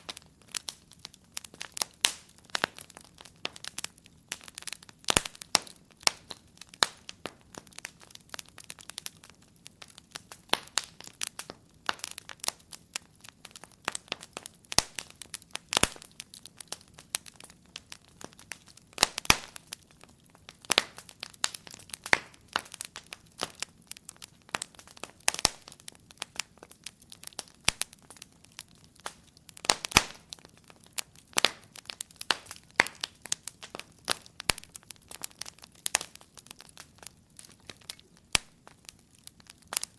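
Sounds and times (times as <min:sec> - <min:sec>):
faint hiss of burning: 0:00.0 - 0:39.9
fire pops and snaps: 0:00.0 - 0:39.9
wood fire crackling: 0:00.0 - 0:39.9.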